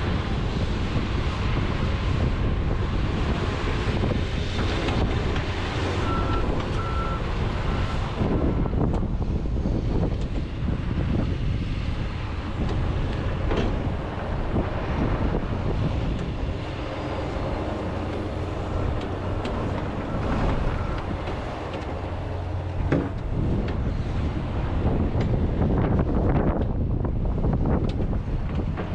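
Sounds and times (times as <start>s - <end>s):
excavator diesel engine under load: 0.0s - 28.9s
sharp knocks: 22.8s - 23.2s.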